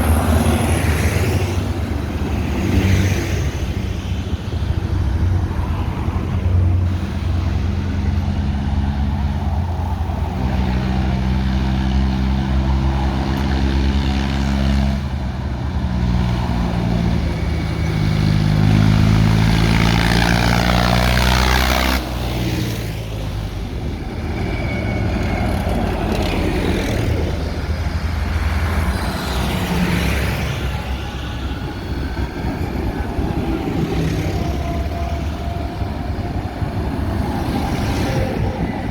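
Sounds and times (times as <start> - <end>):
tractor engines passing: 0.0 - 38.9.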